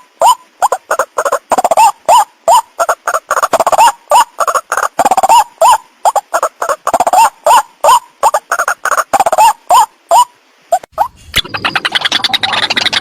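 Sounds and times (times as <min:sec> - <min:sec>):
harsh pulsed croaks: 0:10.7 - 0:13.0.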